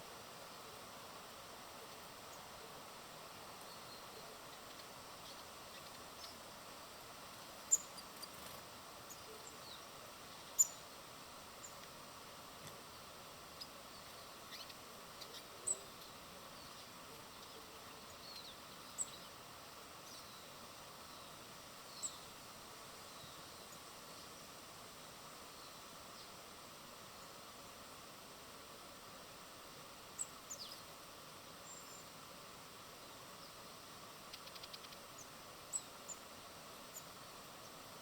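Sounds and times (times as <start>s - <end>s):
steady background hiss: 0.0s - 38.0s
small birds chirping: 1.3s - 12.0s, 12.6s - 22.4s, 30.0s - 32.3s, 32.9s - 38.0s.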